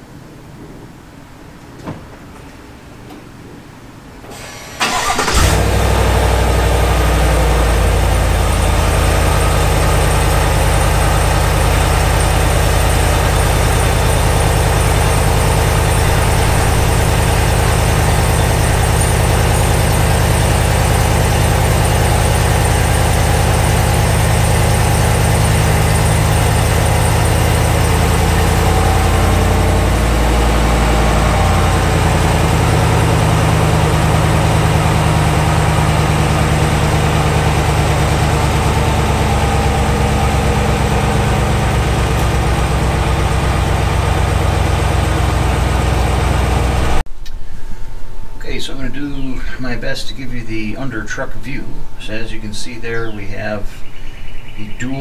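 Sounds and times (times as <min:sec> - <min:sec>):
starter cranking: 0:04.3 - 0:06.7, 0:08.0 - 0:47.0
engine loud fast idle: 0:04.3 - 0:47.0.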